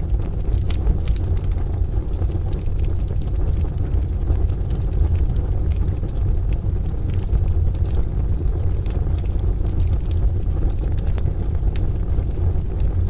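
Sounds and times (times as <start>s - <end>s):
rain rumble: 0.0s - 13.0s
wood stove fire crackling: 0.0s - 13.0s.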